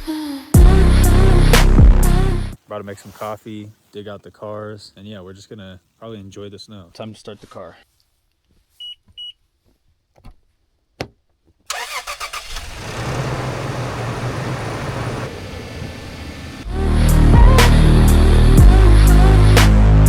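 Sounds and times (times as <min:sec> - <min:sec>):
car engine starting and idling: 0:11.7 - 0:19.3.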